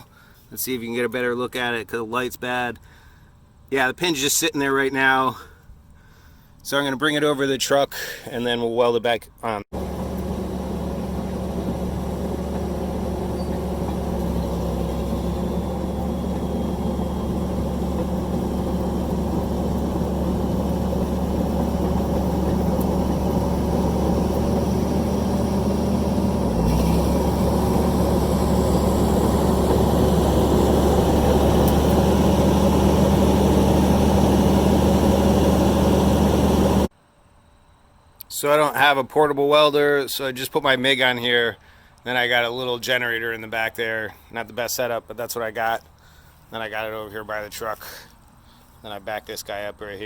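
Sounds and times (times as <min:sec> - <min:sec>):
bulldozer diesel engine running: 0:09.7 - 0:36.9.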